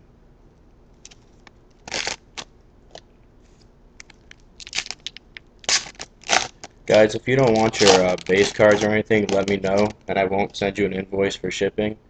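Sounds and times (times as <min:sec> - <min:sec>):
wrapper and cards crinkling: 0:01.0 - 0:02.5, 0:04.0 - 0:10.1.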